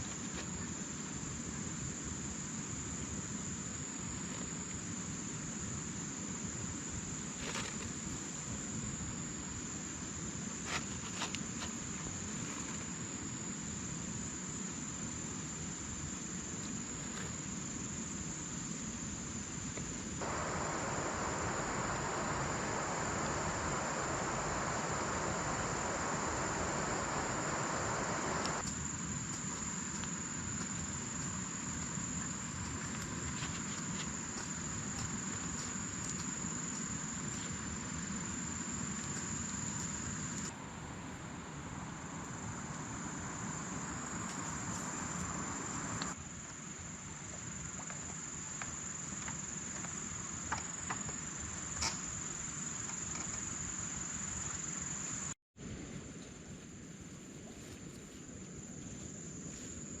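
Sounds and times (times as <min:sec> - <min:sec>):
outdoor background hiss: 0:00.0 - 1:00.0
insects trilling: 0:15.8 - 0:40.5, 0:41.9 - 0:55.4.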